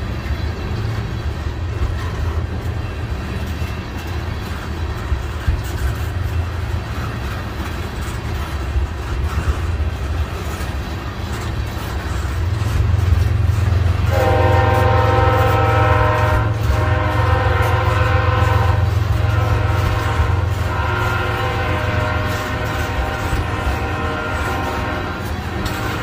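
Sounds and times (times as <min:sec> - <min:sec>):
freight train rumbling past: 0:00.0 - 0:26.0
locomotive horn chord: 0:13.0 - 0:26.0.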